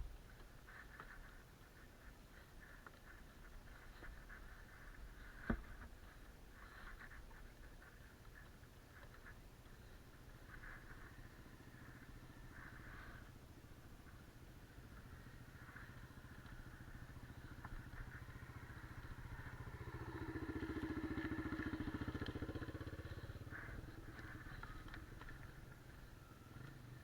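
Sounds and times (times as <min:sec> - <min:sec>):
dirt bike engine running: 0:09.7 - 0:27.0.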